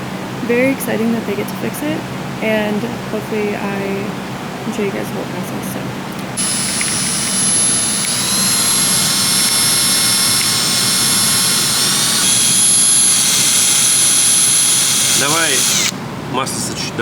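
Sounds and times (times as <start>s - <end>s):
power drill whining in metal: 6.4s - 16.0s.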